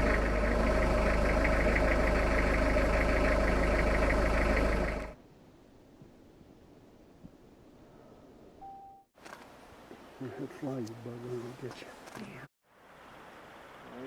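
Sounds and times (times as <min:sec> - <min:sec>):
vehicle engine running: 0:00.0 - 0:05.2.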